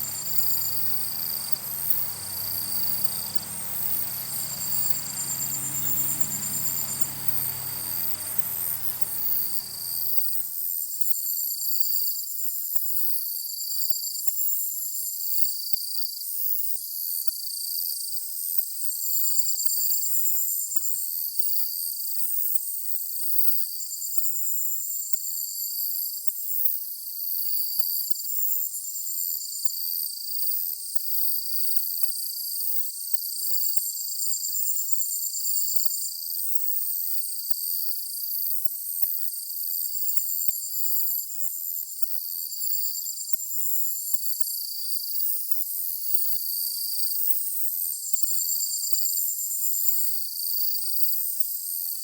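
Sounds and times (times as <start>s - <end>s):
insect trills: 0.0s - 10.5s
crickets chirping: 0.0s - 10.6s.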